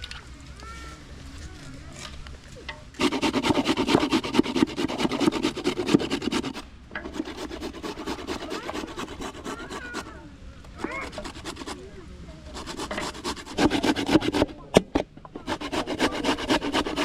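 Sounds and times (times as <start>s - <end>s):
rhythmic scraping strokes: 3.0s - 10.2s, 10.8s - 17.0s.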